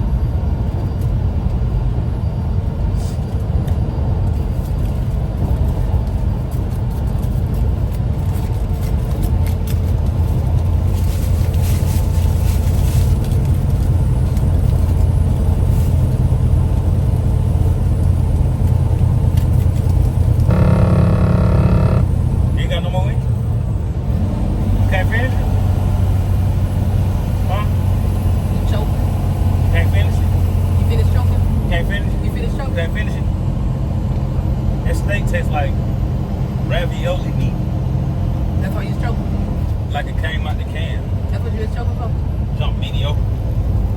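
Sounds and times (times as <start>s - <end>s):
car engine rumble inside cabin: 0.0s - 22.9s
steady multi-pitch tone: 20.5s - 22.1s.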